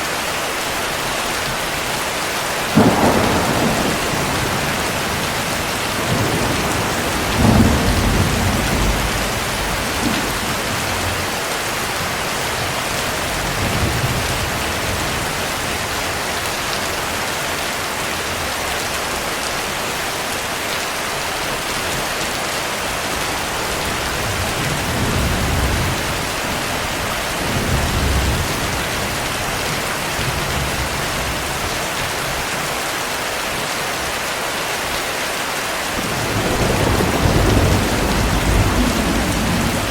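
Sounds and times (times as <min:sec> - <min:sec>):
heavy rain: 0:00.0 - 0:39.9
thunder rumbling: 0:02.7 - 0:17.2, 0:22.8 - 0:31.6, 0:36.0 - 0:39.9.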